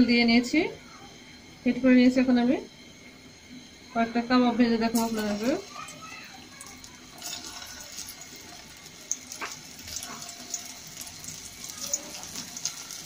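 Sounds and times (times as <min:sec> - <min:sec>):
patties sizzling in hot oil: 0:03.3 - 0:13.0.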